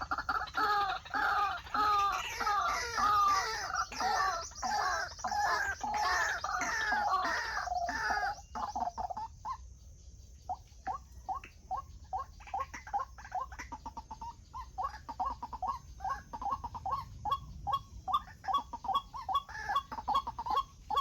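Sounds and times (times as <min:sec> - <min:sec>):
waterhen calling: 0:00.0 - 0:09.6, 0:10.5 - 0:21.0.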